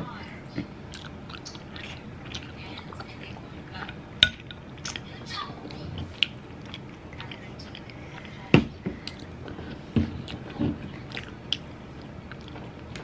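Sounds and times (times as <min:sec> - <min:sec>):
chewing and mouth sounds: 0:00.9 - 0:05.1, 0:06.0 - 0:08.4, 0:09.0 - 0:13.0.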